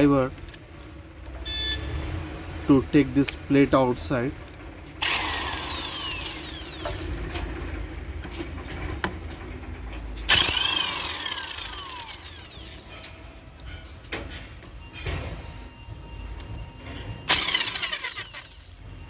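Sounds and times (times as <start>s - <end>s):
hammer striking impact driver: 5.0s - 7.5s, 10.3s - 13.1s, 17.3s - 18.8s.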